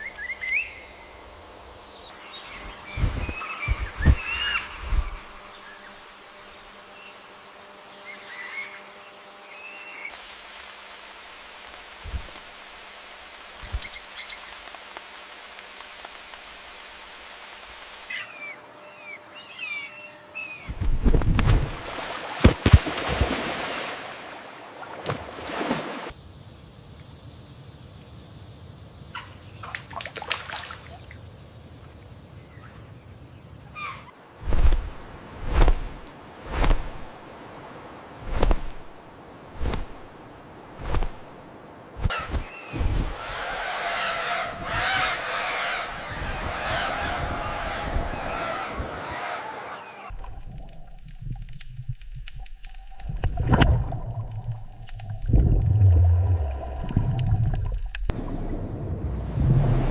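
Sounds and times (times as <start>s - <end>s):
low hum of jungle ambience: 0.0s - 57.0s
insect buzzing: 2.3s - 26.4s
water splashing: 20.9s - 26.1s, 44.3s - 59.9s
short falling bird calls: 42.0s - 50.1s.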